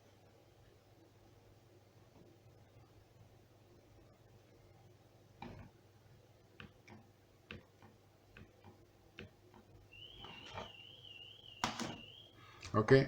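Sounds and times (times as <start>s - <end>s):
wavering high tone: 10.0s - 12.4s.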